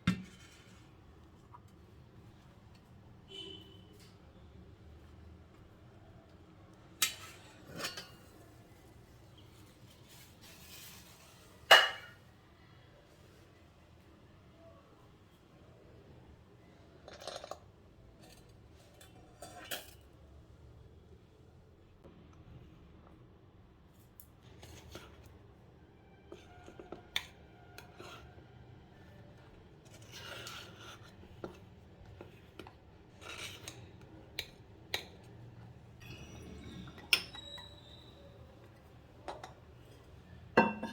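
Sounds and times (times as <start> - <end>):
dishes and utensils clinking: 11.7 - 12.2, 39.2 - 40.9
dishes clinking and knocking: 11.7 - 12.2, 40.6 - 40.9.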